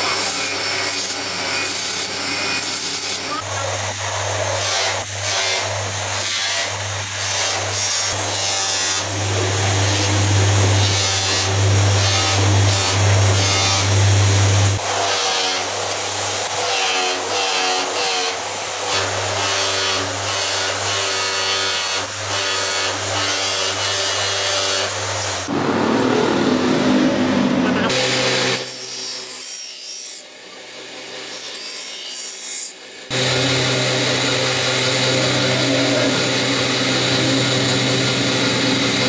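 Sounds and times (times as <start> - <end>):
power tool abrading knife: 0.0 - 39.0
motor hum: 25.5 - 29.0.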